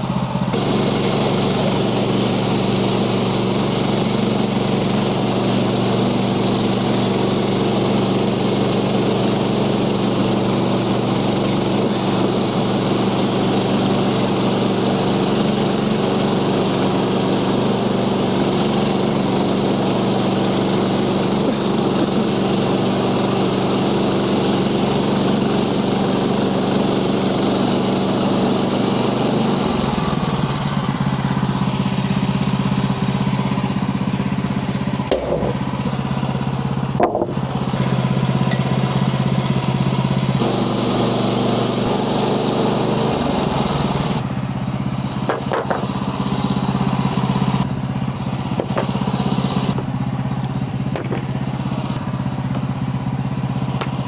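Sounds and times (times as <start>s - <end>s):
sawmill gas engine running: 0.0s - 54.0s
short knocks: 35.1s - 35.9s, 37.0s - 37.4s, 50.9s - 51.4s.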